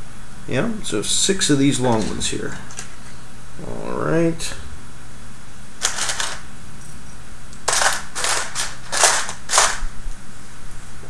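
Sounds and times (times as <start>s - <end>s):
plastic pieces clicking: 5.8s - 6.4s, 7.5s - 9.9s.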